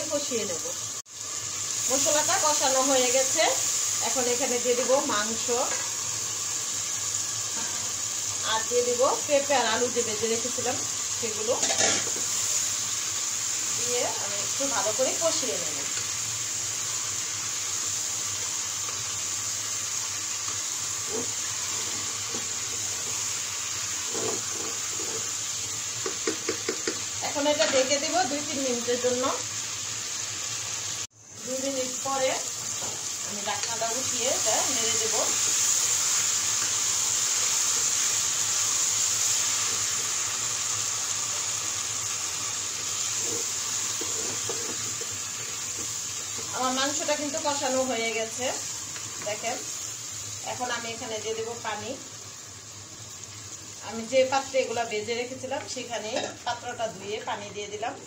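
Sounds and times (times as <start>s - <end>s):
food sizzling in hot oil: 0.0s - 58.0s
spatula stirring in a pot: 42.8s - 47.5s.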